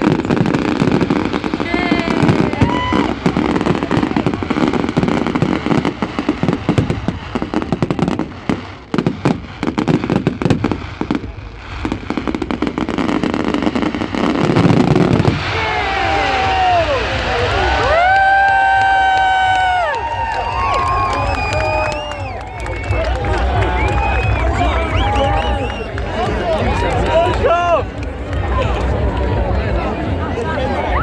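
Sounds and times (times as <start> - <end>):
fireworks bangs and crackles: 0.0 - 31.0
firework whistles: 20.6 - 26.0.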